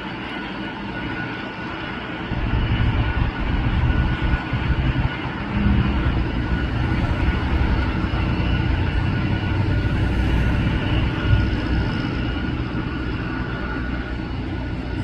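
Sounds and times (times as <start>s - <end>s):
jet engines roaring: 0.0s - 15.0s
thin steady engine whine: 0.0s - 15.0s.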